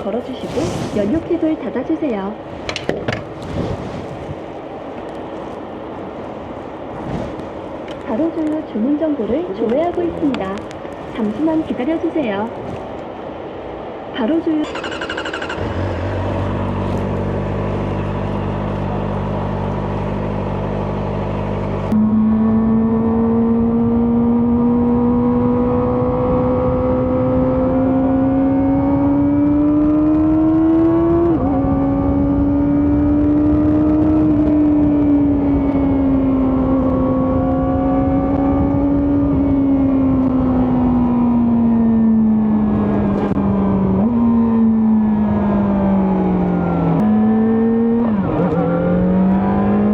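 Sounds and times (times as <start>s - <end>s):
motorcycle engine revving: 14.6s - 49.9s.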